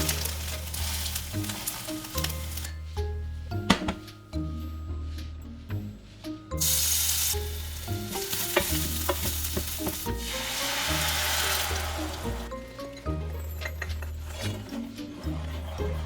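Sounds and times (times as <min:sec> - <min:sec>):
food sizzling in a frying pan: 0:00.0 - 0:02.7, 0:06.6 - 0:12.5
light background music: 0:00.0 - 0:16.0.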